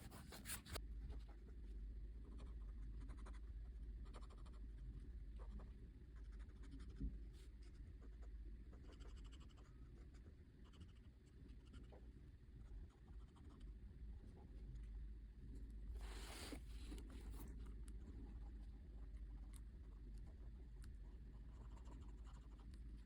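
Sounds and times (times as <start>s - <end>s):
pen scratching on paper: 0.0s - 0.8s.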